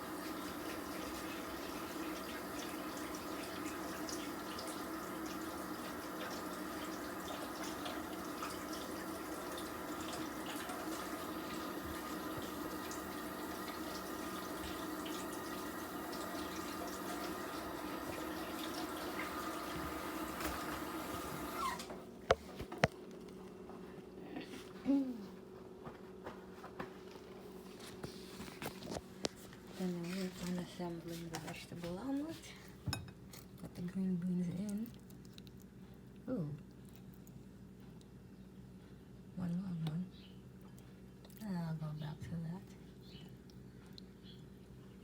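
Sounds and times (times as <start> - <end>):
tap running into sink: 9.5 - 22.9.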